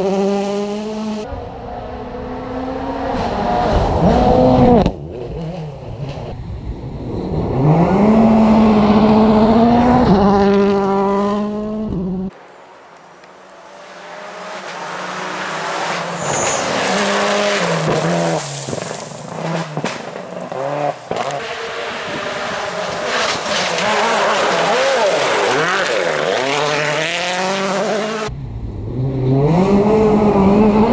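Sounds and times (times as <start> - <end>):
rally car engine revving: 0.0 - 6.4, 7.0 - 12.4, 13.0 - 30.9
tyres hissing on gravel: 14.7 - 20.6.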